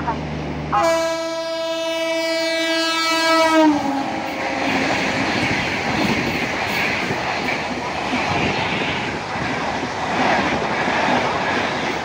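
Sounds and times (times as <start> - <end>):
train horn blast: 0.0 - 5.2
train rushing past: 0.0 - 12.0.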